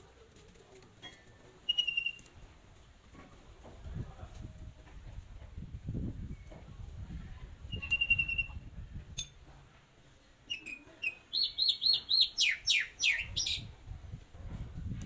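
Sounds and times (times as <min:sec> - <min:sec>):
songbird singing: 0:01.7 - 0:02.3, 0:07.7 - 0:09.3, 0:10.4 - 0:13.7.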